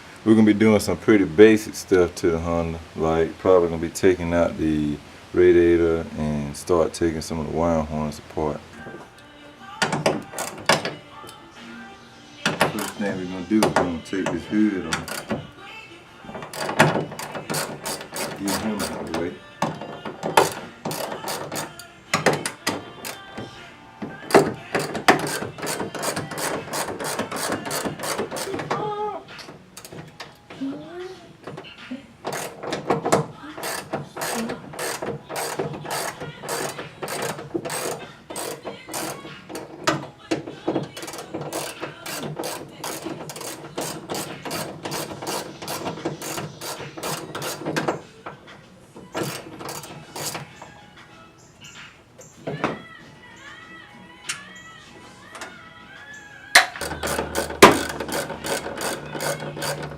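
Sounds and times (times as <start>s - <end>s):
ratchet wrench clicking: 10.4s - 10.9s, 12.8s - 13.0s, 14.9s - 15.3s, 16.5s - 19.1s, 20.3s - 21.8s, 24.3s - 28.6s, 32.3s - 32.8s, 33.6s - 40.0s, 40.9s - 47.9s, 49.2s - 50.4s, 56.6s - 59.9s.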